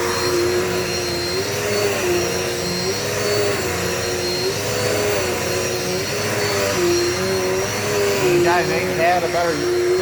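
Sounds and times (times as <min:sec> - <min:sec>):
faint high whine: 0:00.0 - 0:10.0
vacuum cleaner running: 0:00.0 - 0:10.0.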